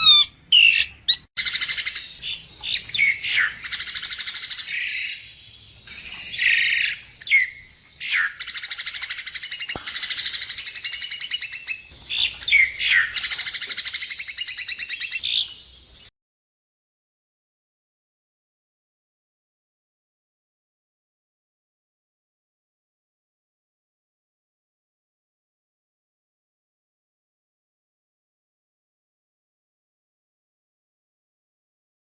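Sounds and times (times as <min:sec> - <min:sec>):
bird whistles and squeaks: 0:00.0 - 0:05.2.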